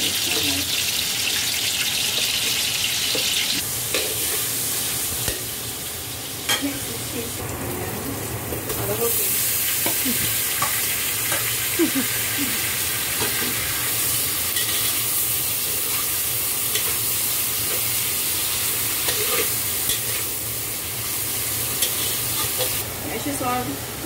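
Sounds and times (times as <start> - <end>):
vegetables sizzling in hot oil: 0.0 - 24.0
metal spatula scraping wok: 13.2 - 20.4, 21.0 - 22.8.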